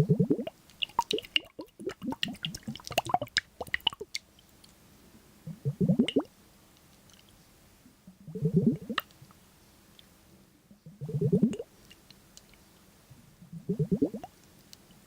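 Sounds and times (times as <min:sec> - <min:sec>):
wet squelches: 0:00.1 - 0:04.8.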